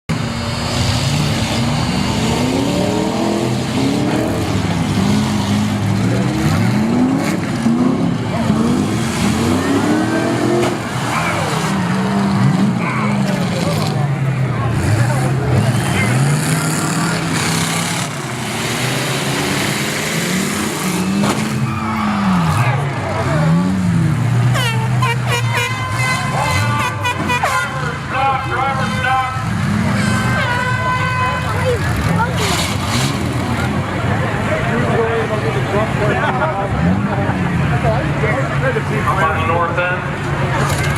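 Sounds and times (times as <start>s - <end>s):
off-road vehicle motor revving: 0.1s - 40.9s
rough drivetrain and terrain noise: 25.8s - 40.9s.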